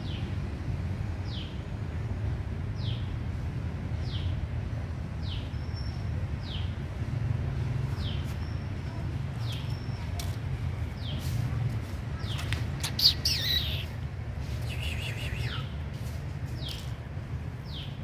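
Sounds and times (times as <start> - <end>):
small bird chirping: 12.2 - 15.7.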